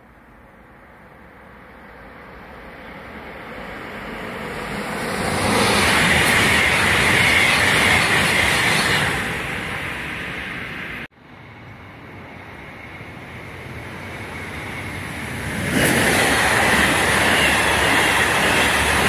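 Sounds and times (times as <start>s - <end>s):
high-speed train rushing past: 0.0s - 19.0s.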